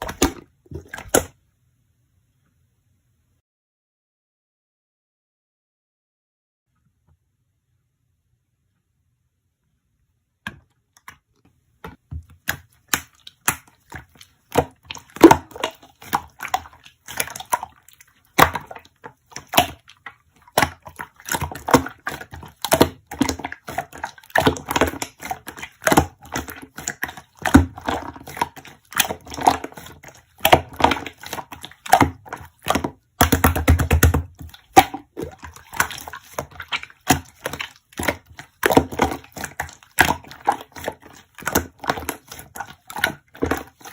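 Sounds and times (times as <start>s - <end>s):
slime squishing and popping: 0.0s - 1.3s, 12.4s - 43.9s.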